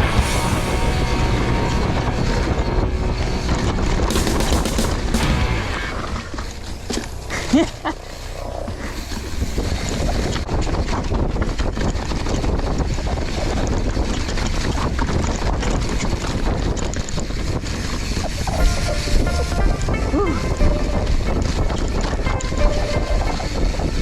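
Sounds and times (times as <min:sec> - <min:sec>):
wind on microphone: 0:00.0 - 0:05.2, 0:05.8 - 0:24.0
knobby tyres rumbling on dirt: 0:00.0 - 0:18.6
bike rattling and clicking: 0:08.7 - 0:18.6.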